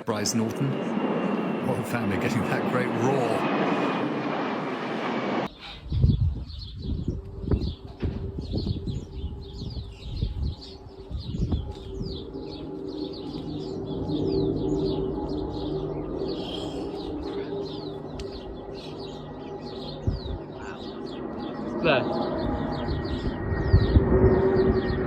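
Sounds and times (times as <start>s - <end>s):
aircraft engines droning overhead: 0.0s - 25.0s
small birds chirping: 5.5s - 25.0s.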